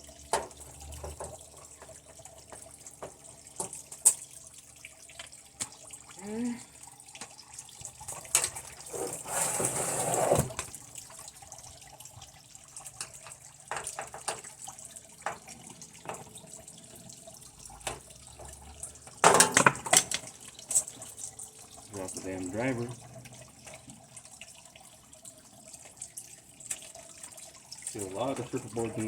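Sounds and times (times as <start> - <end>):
scraping noise: 8.9 - 10.6.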